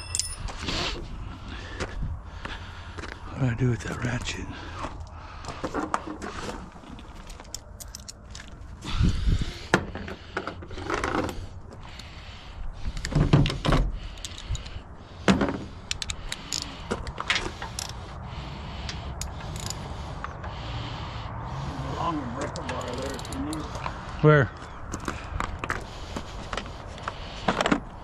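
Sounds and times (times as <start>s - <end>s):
metal hand tools clinking: 0.0s - 0.6s, 7.2s - 8.2s
heavy clunks and scrapes: 9.7s - 11.5s
ratchet clicking: 17.7s - 18.0s, 19.2s - 19.8s, 22.8s - 23.7s.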